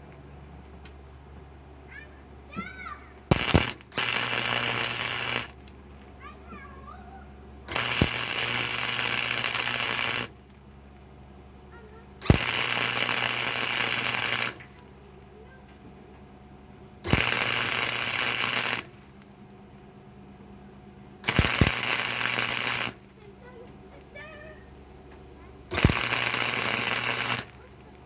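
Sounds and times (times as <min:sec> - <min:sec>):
welder crackling hiss: 0:03.3 - 0:05.8, 0:07.7 - 0:10.6, 0:12.2 - 0:15.0, 0:17.0 - 0:19.2, 0:21.2 - 0:23.3, 0:25.7 - 0:28.0.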